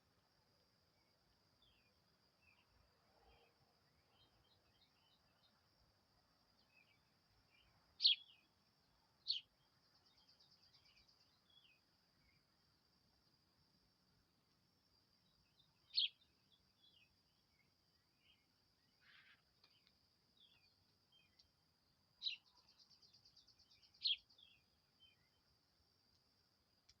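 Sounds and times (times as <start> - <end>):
small birds chirping: 1.6 - 5.6, 6.5 - 12.6, 15.2 - 21.6, 22.2 - 25.5.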